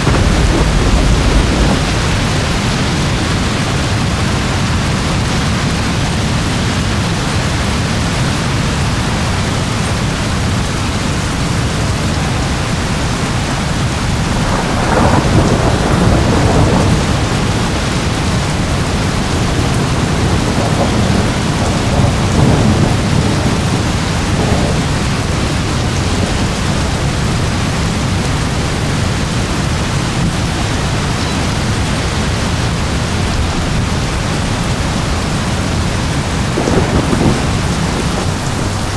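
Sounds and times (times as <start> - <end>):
steady rain: 0.0 - 38.9
thunder rumbling: 0.0 - 38.9.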